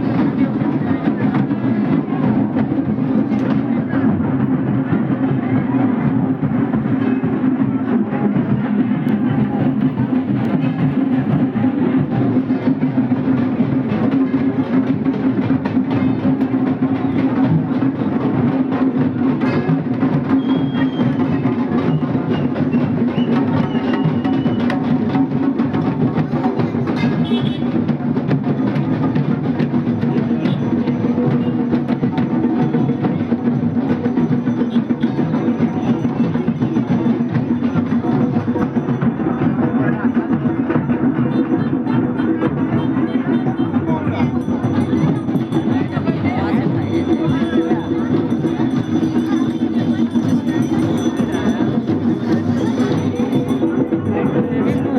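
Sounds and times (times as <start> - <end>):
fast drumming: 0.0 - 54.9.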